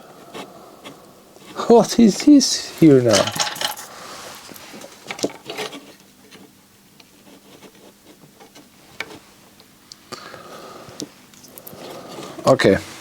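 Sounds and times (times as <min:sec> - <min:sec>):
small tools clicking and tapping: 0:03.1 - 0:03.9.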